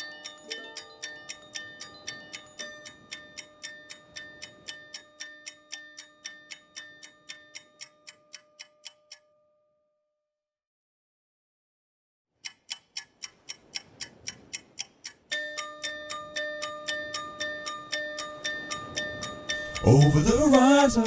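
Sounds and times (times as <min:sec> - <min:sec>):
rapid clock-like ticking: 0:00.0 - 0:09.2, 0:12.4 - 0:21.0
held tones: 0:15.3 - 0:21.0.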